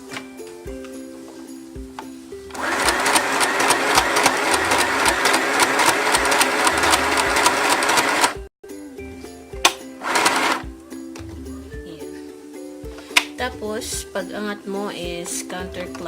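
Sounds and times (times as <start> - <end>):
sewing machine stitching: 2.6 - 8.5, 10.0 - 10.6.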